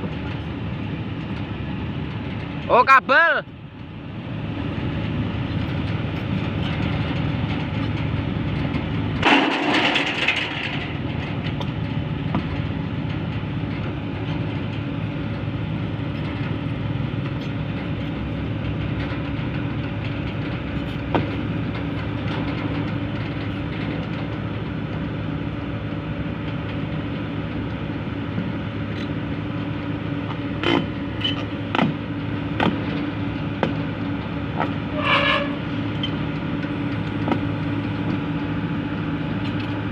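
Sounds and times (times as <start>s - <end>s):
excavator diesel engine running: 0.0s - 39.9s
sharp metallic clanks: 9.2s - 11.7s.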